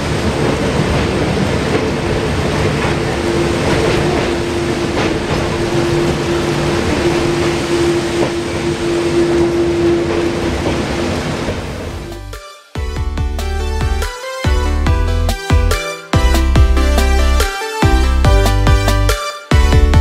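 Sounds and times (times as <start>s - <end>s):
train clacks: 0.0s - 12.2s
train wheel and track noise: 0.0s - 12.3s
constant drone: 0.0s - 12.4s.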